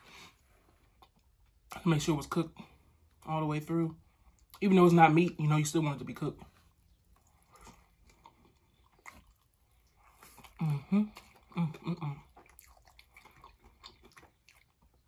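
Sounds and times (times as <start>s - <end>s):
wet chewing and lip smacking: 0.6s - 1.8s, 4.1s - 4.6s, 6.6s - 15.0s.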